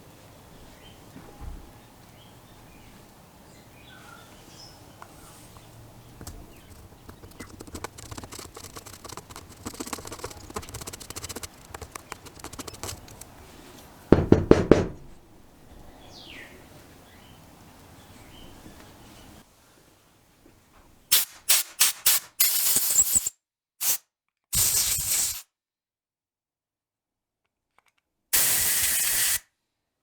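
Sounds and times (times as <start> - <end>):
small clicks and scraping: 5.0 - 13.9, 27.7 - 28.1
loud knocks: 14.1 - 15.3
birds chirping faintly: 15.1 - 19.4.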